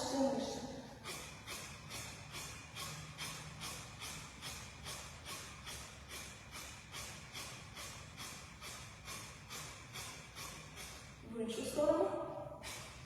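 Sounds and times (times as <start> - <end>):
forceful nasal exhalations: 0.8 - 11.2.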